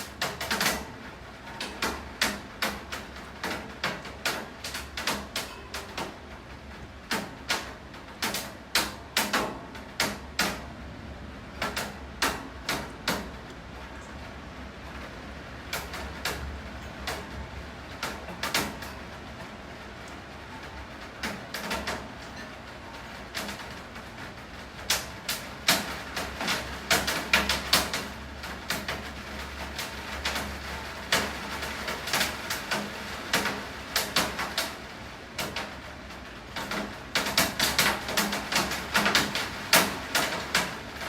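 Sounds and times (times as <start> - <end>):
steady hiss of rainfall: 0.0 - 41.0
raindrops tapping hard surface: 11.5 - 41.0.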